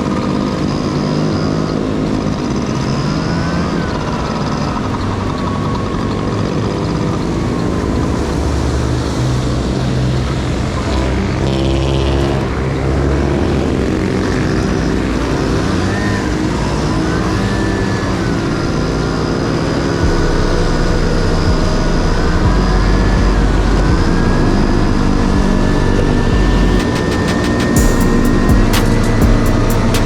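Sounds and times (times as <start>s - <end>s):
two-stroke scooter engine: 13.4s - 30.0s
heavy low rumble: 19.7s - 30.0s.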